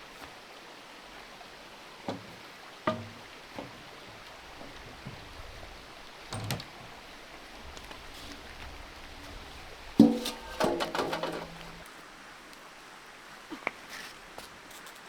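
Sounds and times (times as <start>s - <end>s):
short knocks: 2.1s - 6.8s, 10.0s - 11.8s.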